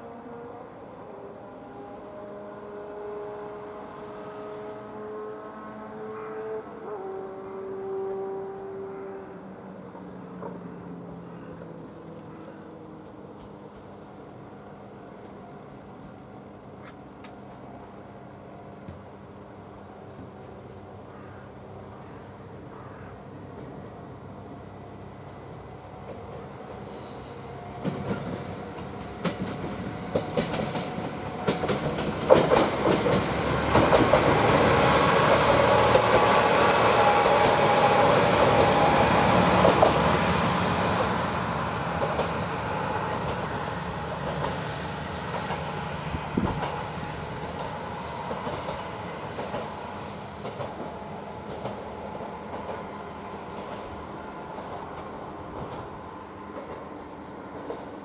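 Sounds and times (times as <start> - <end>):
train passing: 0.0 - 58.0
wheels clacking over rail joints: 27.8 - 45.8, 46.4 - 52.9.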